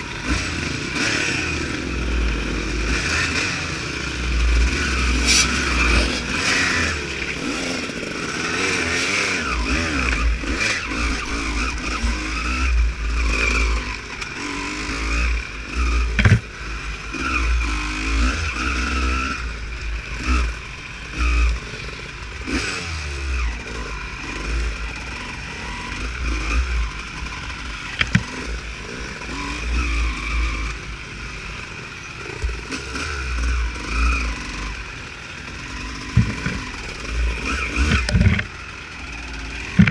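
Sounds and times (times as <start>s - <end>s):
motocross bike revving: 0.0s - 39.9s
sharp knocks: 16.2s - 16.4s, 36.2s - 36.6s.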